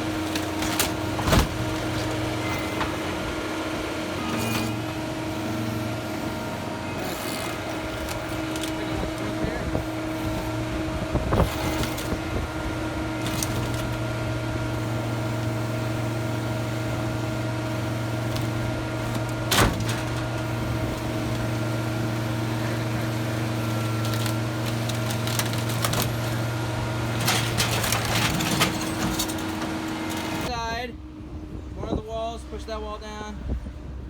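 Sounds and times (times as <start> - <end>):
engine running: 0.0 - 34.0
knocks and clunks: 0.1 - 3.4, 18.1 - 30.5.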